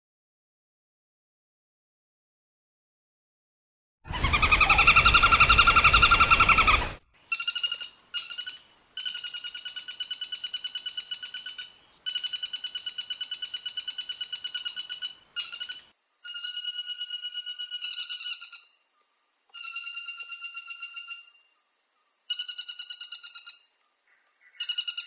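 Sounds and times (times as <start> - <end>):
woodpecker rattling trills: 4.1 - 18.8, 22.3 - 25.0
background hiss: 4.1 - 25.0.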